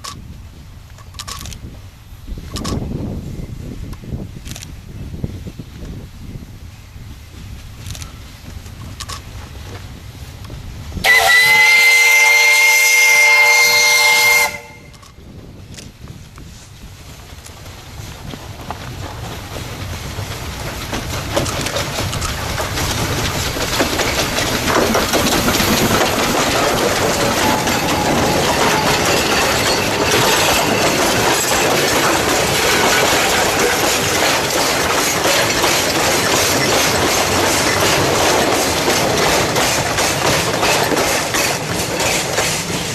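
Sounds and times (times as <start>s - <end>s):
steam train running by: 0.0s - 42.9s
wagon wheels clattering over rails: 17.2s - 42.9s.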